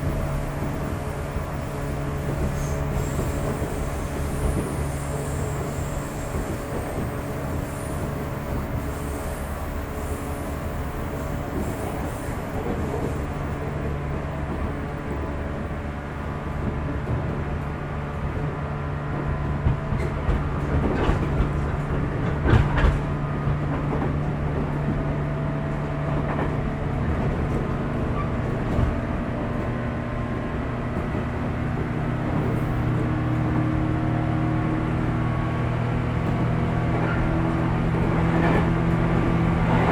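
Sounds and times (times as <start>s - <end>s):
train motor hum: 9.5s - 39.9s.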